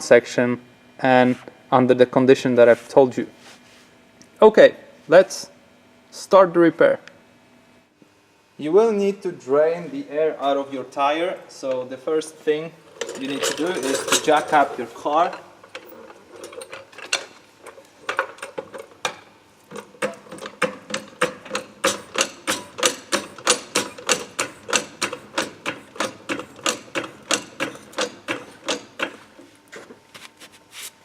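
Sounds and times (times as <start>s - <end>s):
car jack clicking: 20.0s - 29.2s.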